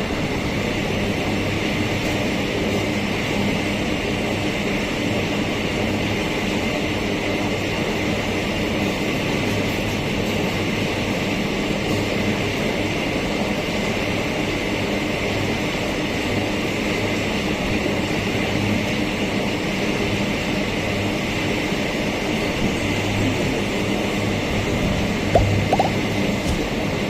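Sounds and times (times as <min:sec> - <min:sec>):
freight train passing: 0:00.0 - 0:27.0.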